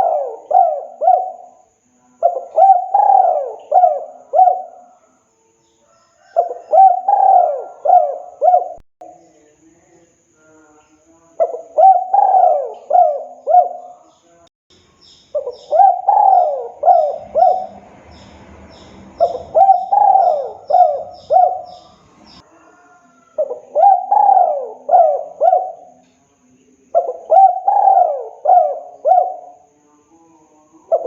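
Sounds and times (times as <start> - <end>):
dove cooing: 0.0 - 1.6, 2.2 - 5.0, 6.2 - 8.8, 11.4 - 14.0, 15.3 - 26.0, 26.9 - 29.6.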